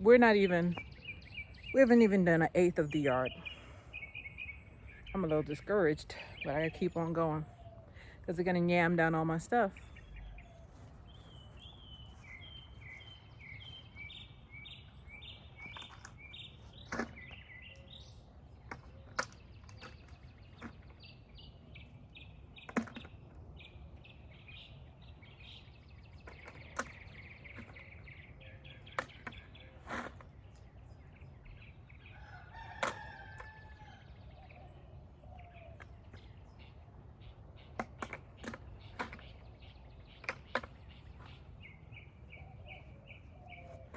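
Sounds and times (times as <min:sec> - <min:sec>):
bird chirping: 0:00.0 - 0:43.9
rooster crowing: 0:32.1 - 0:34.1.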